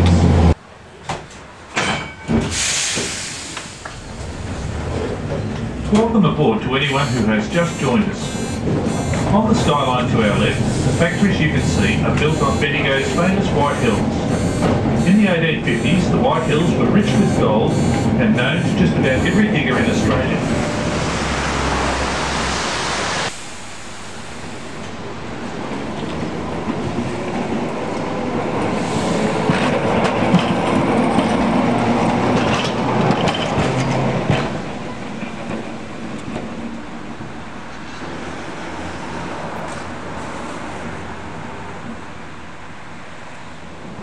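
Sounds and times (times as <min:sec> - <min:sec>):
tram wheels clattering over rails: 0:00.0 - 0:06.6, 0:08.6 - 0:22.0, 0:24.8 - 0:40.0.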